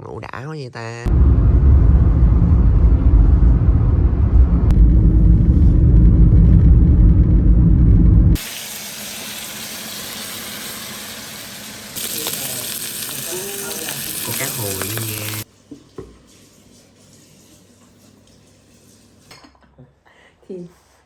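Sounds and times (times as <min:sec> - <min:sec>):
food sizzling in a frying pan: 0:08.4 - 0:15.5.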